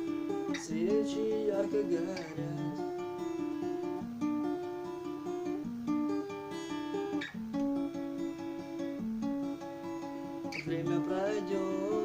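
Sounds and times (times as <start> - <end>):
acoustic guitar strumming and melody: 0.0 - 12.0.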